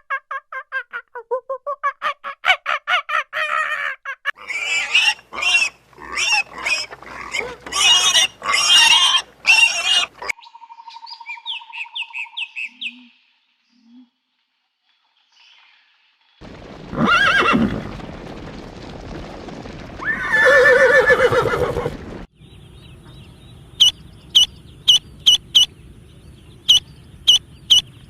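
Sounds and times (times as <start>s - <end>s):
harsh animal squeals: 3.4s - 10.3s.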